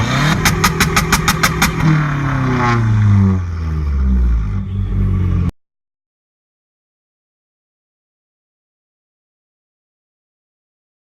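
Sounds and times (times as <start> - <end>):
car engine revving: 0.0 - 5.5
sharp exhaust pops: 0.2 - 2.0.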